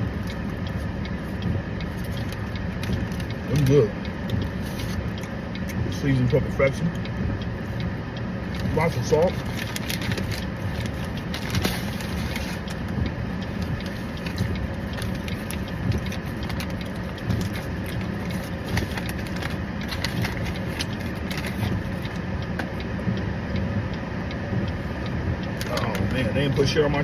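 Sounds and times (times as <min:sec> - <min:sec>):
car engine idling: 0:00.0 - 0:27.0
small clicks and rustles: 0:08.6 - 0:22.8.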